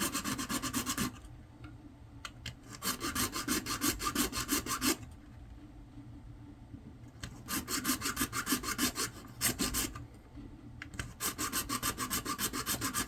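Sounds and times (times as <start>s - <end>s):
hand tool rasping strokes: 0.0s - 1.2s, 2.7s - 5.0s, 7.5s - 10.0s, 11.0s - 13.0s.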